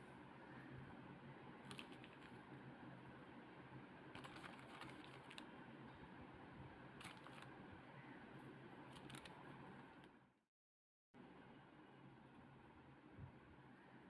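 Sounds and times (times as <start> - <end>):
faint low hum: 0.0 - 10.4.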